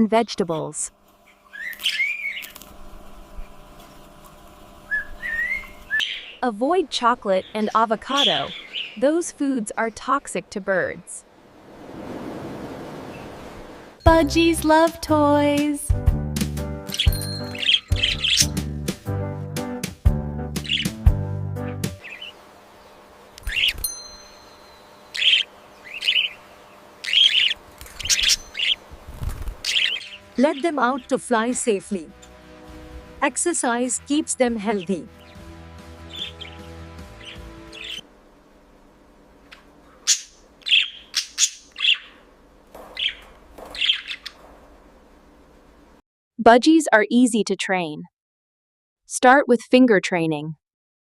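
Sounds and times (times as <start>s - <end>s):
budgerigar chirping: 1.5s - 2.5s, 4.9s - 6.4s, 7.4s - 9.0s, 16.9s - 18.6s, 20.6s - 21.0s, 22.0s - 22.4s, 25.2s - 26.4s, 27.0s - 28.8s, 29.6s - 31.1s, 36.0s - 38.0s, 40.0s - 42.2s, 42.9s - 44.4s
music: 14.0s - 22.1s, 30.3s - 38.0s.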